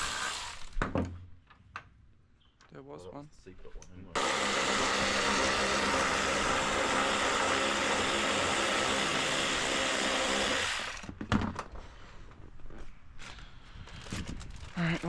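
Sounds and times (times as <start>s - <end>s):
power tool motor running: 0.0s - 0.7s, 4.2s - 11.1s.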